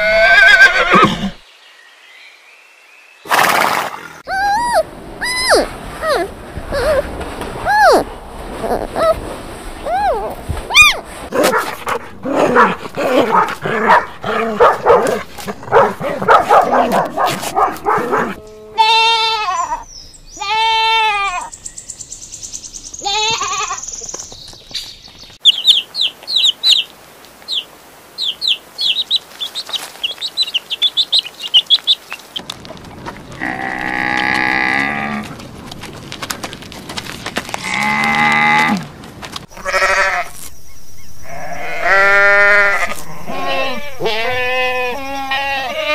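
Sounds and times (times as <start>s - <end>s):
goat bleats: 18.6s - 19.8s, 20.4s - 21.5s, 39.6s - 40.4s, 41.3s - 45.9s.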